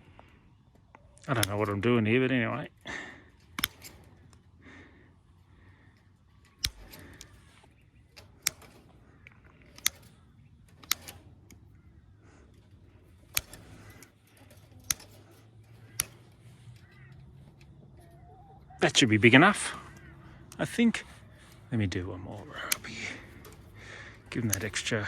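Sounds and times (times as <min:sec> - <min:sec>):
wire cutter snipping wire: 0:01.2 - 0:01.8, 0:03.3 - 0:04.5, 0:06.4 - 0:18.2, 0:19.2 - 0:25.0.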